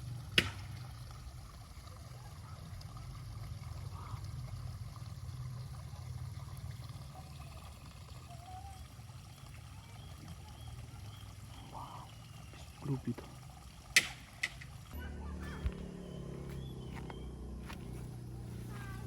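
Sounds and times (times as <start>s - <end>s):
water trickling: 0.0s - 19.0s.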